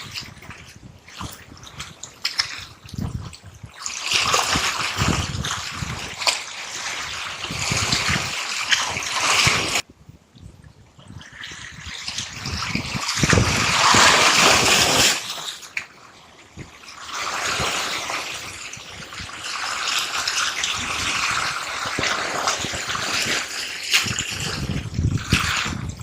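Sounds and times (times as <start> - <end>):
seawater surging and washing: 0.0 - 26.0.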